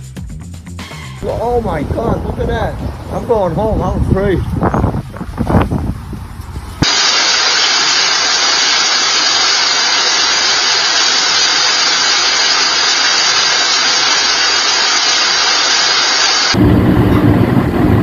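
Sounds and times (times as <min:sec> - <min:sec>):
loud rushing hiss: 0:06.8 - 0:16.8.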